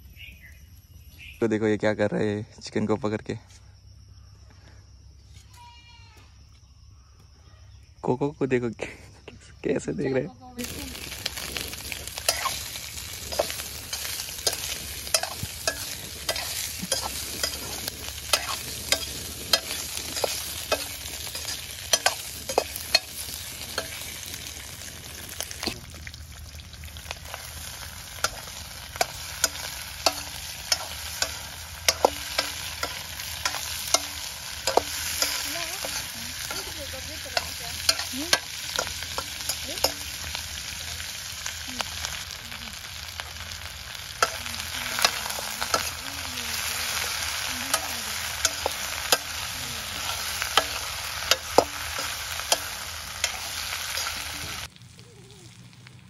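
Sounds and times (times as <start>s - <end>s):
meat sizzling in oil: 10.6s - 56.0s
metal ladle scraping a pan: 10.9s - 25.8s, 28.2s - 40.4s, 44.2s - 54.7s.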